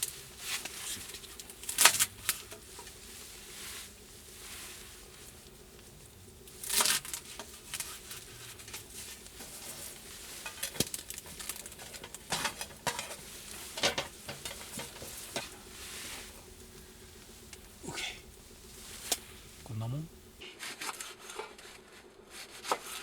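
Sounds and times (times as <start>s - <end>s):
cookware and utensils clattering: 6.6s - 19.7s.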